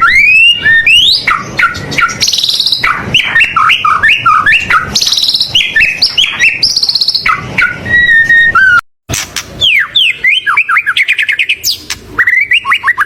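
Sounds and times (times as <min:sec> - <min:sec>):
songbird whistling and trilling: 0:00.0 - 0:08.8, 0:09.6 - 0:13.0.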